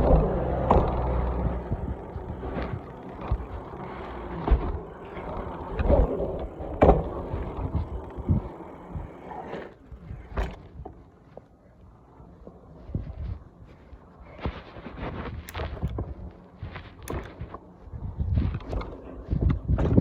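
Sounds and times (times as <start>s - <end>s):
bicycle knocks and rattles: 0.0s - 11.0s
bicycle tyre and road rumble: 0.0s - 20.0s.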